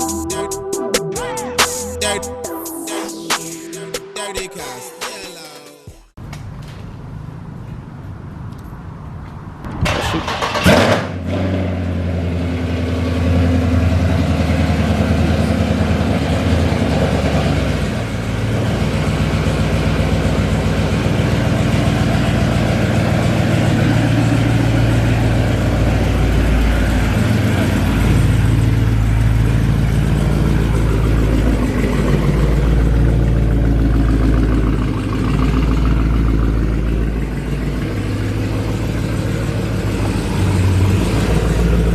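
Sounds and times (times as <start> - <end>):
car engine starting and idling: 6.1 - 41.9.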